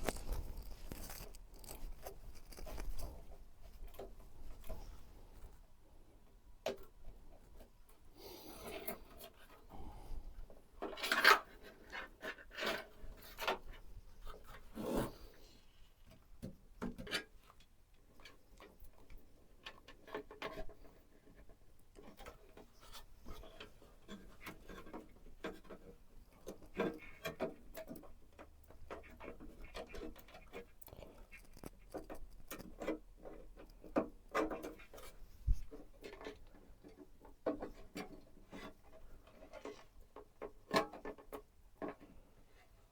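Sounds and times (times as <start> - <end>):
light clicks taps and rubbing: 0.0 - 4.8.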